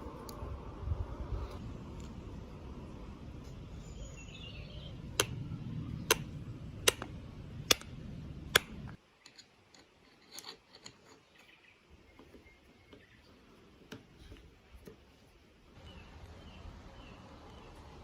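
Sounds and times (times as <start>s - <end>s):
low steady hum: 0.0s - 10.5s.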